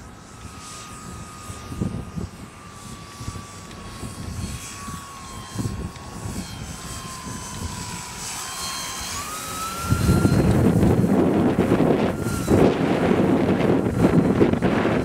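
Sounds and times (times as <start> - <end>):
model airplane motor whine: 0.0 - 15.0
wind buffeting microphone: 0.4 - 15.0.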